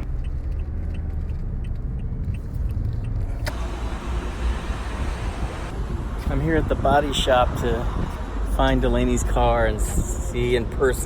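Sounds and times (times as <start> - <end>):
car driving rumble inside cabin: 0.0 - 8.6.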